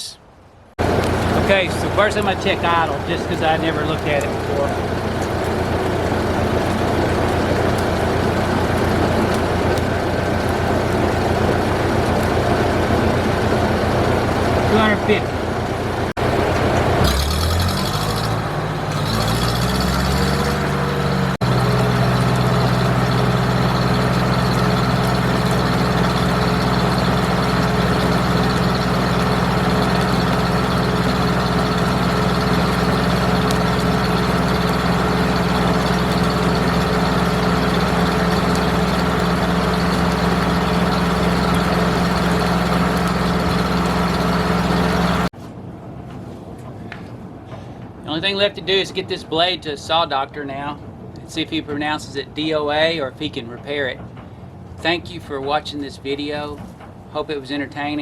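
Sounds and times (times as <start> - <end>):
sawmill engine running: 0.8 - 45.3.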